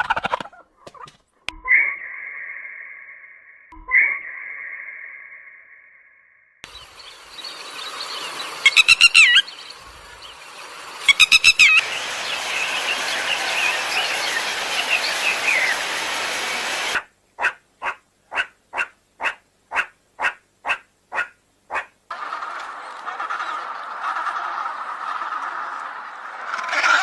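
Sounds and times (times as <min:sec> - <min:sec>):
bird trilled calls: 0:06.6 - 0:15.8
short evenly spaced bird calls: 0:06.6 - 0:16.0, 0:16.8 - 0:22.1
steady hiss: 0:06.6 - 0:17.4
birds chirping: 0:06.6 - 0:25.0.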